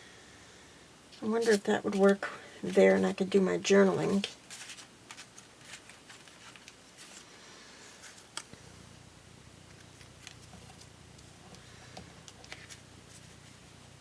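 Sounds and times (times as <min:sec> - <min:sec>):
faint low hum: 0:00.0 - 0:14.0
paper rustling: 0:01.2 - 0:03.2, 0:04.0 - 0:08.6, 0:12.2 - 0:13.6.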